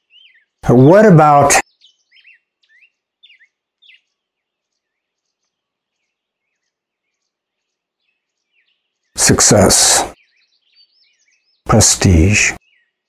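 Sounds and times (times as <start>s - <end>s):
bird chirps and trills: 0.0s - 0.7s, 1.6s - 9.2s, 10.1s - 11.7s, 12.6s - 13.0s.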